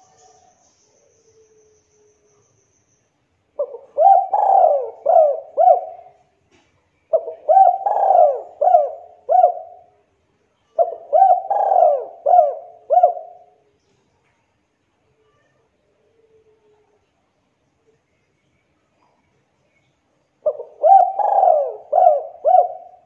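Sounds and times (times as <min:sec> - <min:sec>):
dove cooing: 0:03.6 - 0:06.2, 0:07.1 - 0:09.9, 0:10.8 - 0:13.6, 0:20.4 - 0:23.0.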